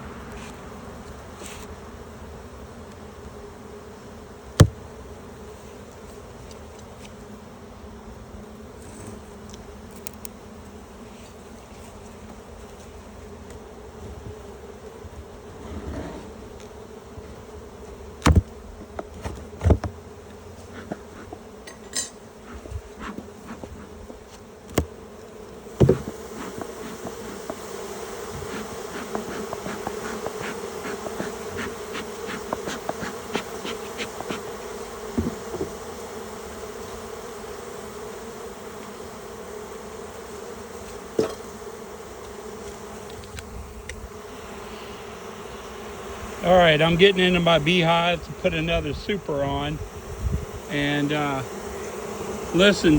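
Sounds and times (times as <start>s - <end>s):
bees buzzing in hive: 0.0s - 52.9s
knocks on hive: 4.6s - 4.8s, 18.2s - 18.6s, 25.8s - 27.7s, 35.1s - 35.8s, 41.2s - 41.4s.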